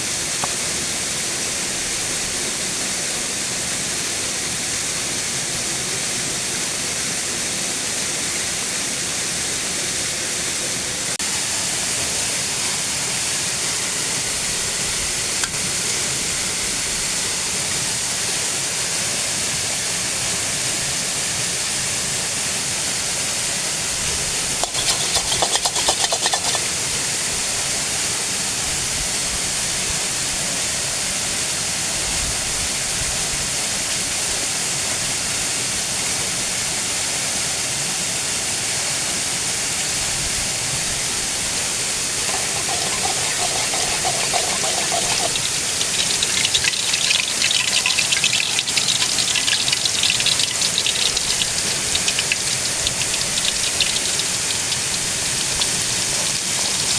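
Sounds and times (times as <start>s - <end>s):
rapid clicking or rattling: 24.6s - 26.7s, 42.3s - 56.9s.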